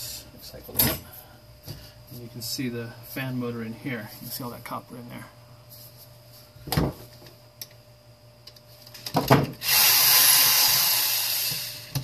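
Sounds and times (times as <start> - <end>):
power drill running: 9.6 - 12.0.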